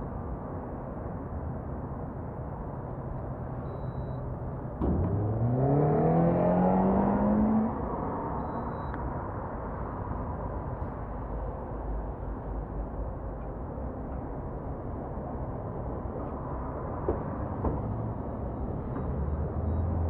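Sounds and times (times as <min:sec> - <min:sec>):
low rumble of riding noise: 0:00.0 - 0:20.0
motorcycle engine accelerating: 0:04.9 - 0:07.8.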